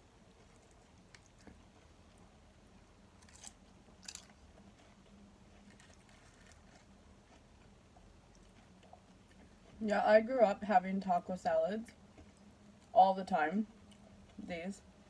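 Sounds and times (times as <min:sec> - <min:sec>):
faint chewing with crunches: 0:00.0 - 0:09.9, 0:11.9 - 0:13.0, 0:13.7 - 0:14.5.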